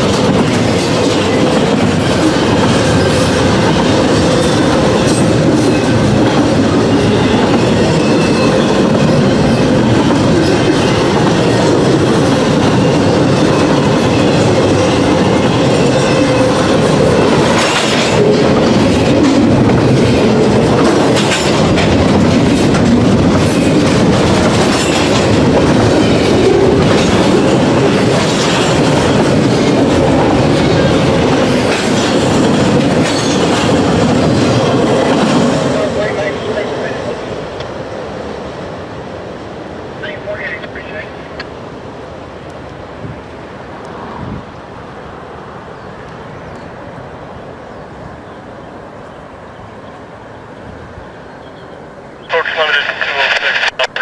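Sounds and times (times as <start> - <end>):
wheels clickety-clack: 0.0 - 35.8
train wheels rumbling on rails: 0.0 - 54.0.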